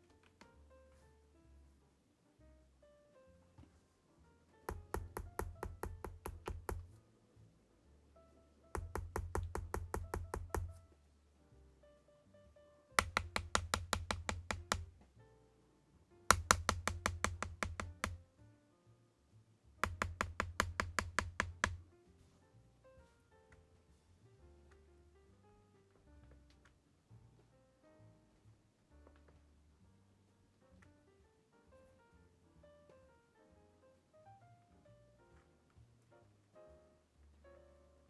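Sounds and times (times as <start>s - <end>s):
quiet background music: 0.0s - 38.0s
mechanical keyboard typing: 4.7s - 6.9s, 8.8s - 10.8s, 13.0s - 14.9s, 16.3s - 18.2s, 19.8s - 21.8s.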